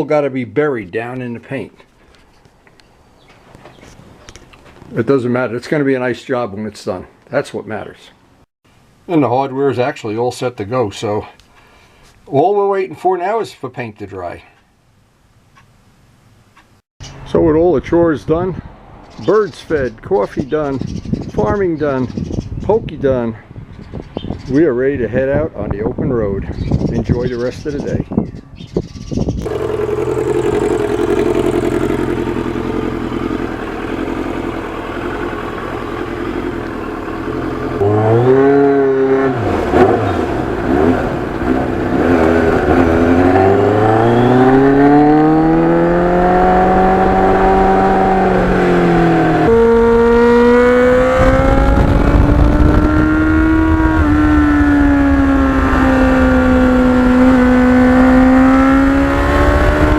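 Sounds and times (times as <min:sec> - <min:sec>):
wind noise on microphone: 0:17.1 - 0:19.1, 0:19.7 - 0:29.6, 0:38.0 - 0:59.9
motorcycle engine revving: 0:29.4 - 0:59.9.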